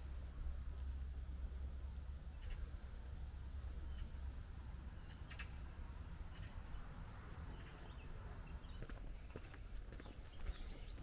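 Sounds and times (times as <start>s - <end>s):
low steady rumble: 0.0s - 8.8s
small birds chirping: 0.7s - 11.0s.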